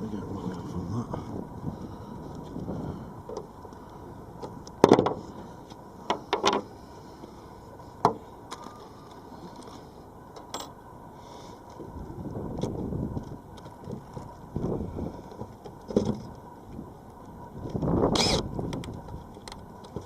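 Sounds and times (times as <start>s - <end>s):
low steady background noise: 0.0s - 20.0s
knocks and clunks on boat roof: 4.8s - 5.2s.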